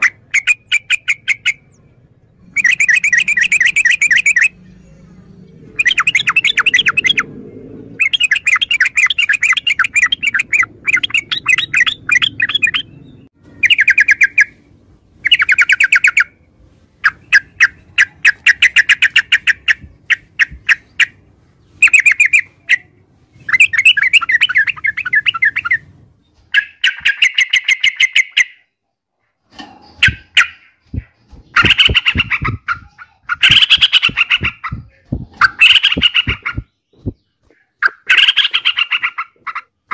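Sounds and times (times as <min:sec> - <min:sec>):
bulbul calling: 0:00.0 - 0:16.4, 0:17.0 - 0:25.9, 0:26.5 - 0:28.7, 0:29.8 - 0:39.9.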